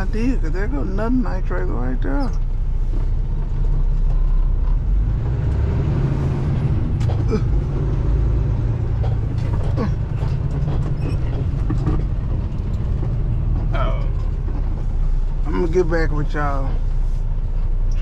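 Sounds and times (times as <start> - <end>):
diesel truck engine rumbling: 0.0 - 18.0
faint short squeaks: 10.9 - 11.5.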